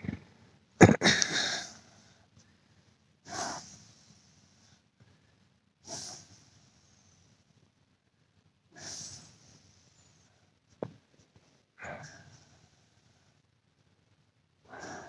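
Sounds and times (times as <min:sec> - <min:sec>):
person breathing through nose: 0:03.3 - 0:04.8, 0:05.8 - 0:07.3, 0:08.7 - 0:09.8, 0:14.7 - 0:15.0.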